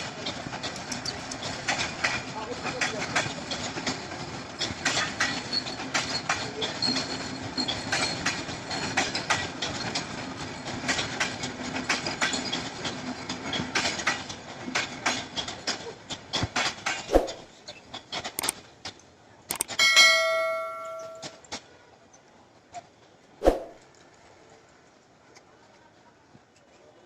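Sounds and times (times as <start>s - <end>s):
train rumbling: 0.0s - 21.8s
train wheels clicking on rails: 0.0s - 21.8s.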